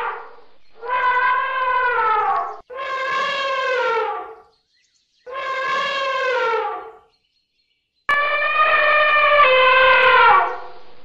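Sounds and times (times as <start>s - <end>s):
elephant trumpeting: 0.0s - 4.4s, 5.3s - 7.0s, 8.1s - 10.8s.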